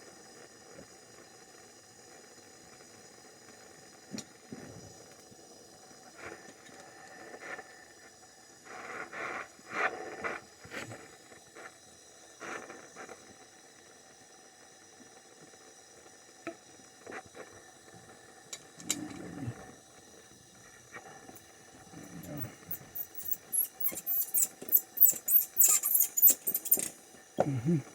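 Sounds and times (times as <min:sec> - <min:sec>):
pipes and tools clinking: 0:22.0 - 0:27.0.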